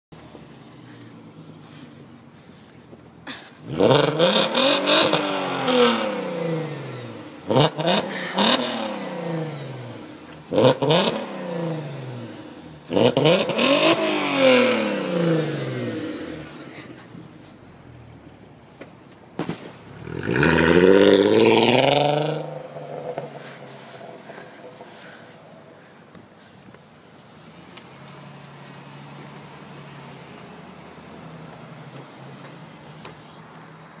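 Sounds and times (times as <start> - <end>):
car engine revving: 3.7 - 16.9, 19.9 - 25.7.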